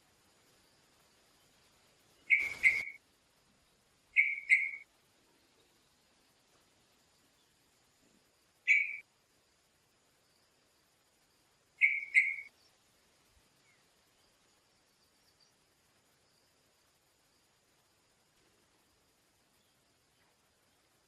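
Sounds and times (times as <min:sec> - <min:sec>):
bird calling: 0:02.2 - 0:03.0, 0:04.2 - 0:04.9, 0:08.6 - 0:09.0, 0:11.8 - 0:12.5.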